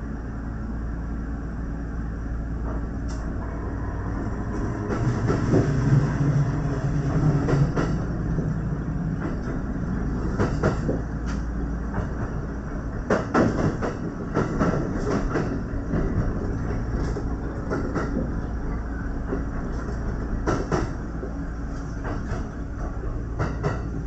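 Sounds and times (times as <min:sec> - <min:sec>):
train wheels rumbling on rail: 0:00.0 - 0:24.0
low drone: 0:02.6 - 0:10.4.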